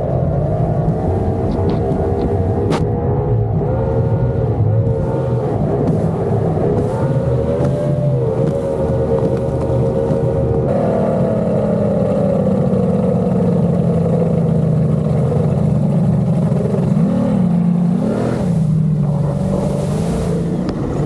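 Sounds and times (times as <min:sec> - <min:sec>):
outboard engines running hard: 0:00.0 - 0:21.0.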